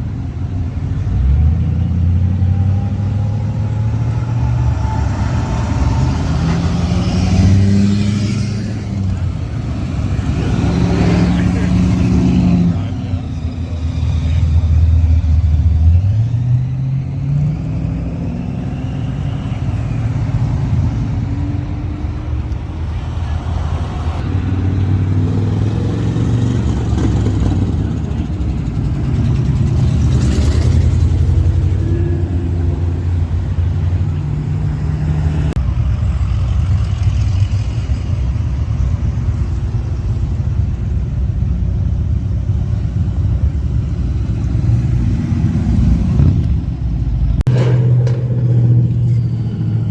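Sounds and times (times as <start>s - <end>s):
car engines running: 0.0s - 49.9s
car engine speeding up: 1.2s - 22.6s.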